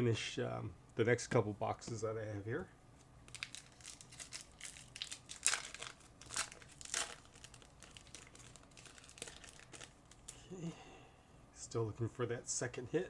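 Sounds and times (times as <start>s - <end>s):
wrappers crinkling: 3.3s - 10.4s.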